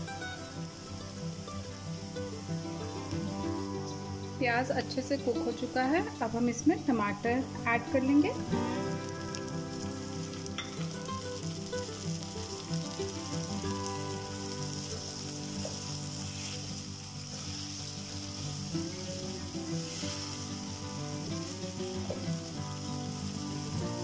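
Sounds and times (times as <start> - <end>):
soft background music: 0.0 - 24.0
vegetables sizzling in frying pan: 0.0 - 24.0
spatula stirring in pan: 14.7 - 22.4.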